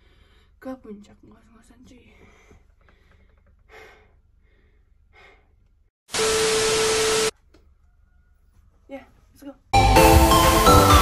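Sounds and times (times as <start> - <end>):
static hiss with beep tone: 6.2 - 7.3.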